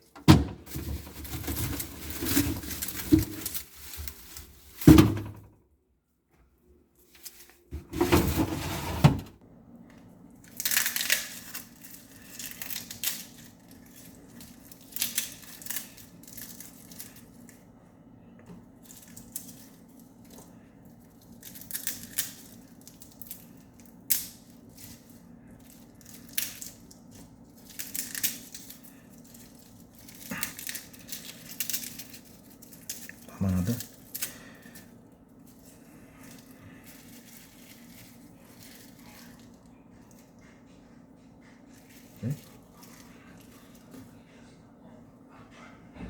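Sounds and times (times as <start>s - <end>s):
crinkling and rustling: 0.0s - 5.5s, 7.0s - 9.4s, 24.6s - 43.9s.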